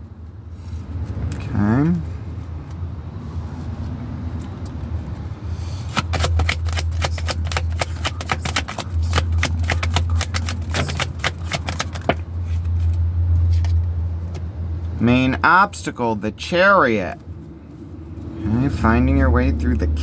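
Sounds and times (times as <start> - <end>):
steady low hum: 0.0 - 20.0
cards being shuffled: 5.8 - 13.8.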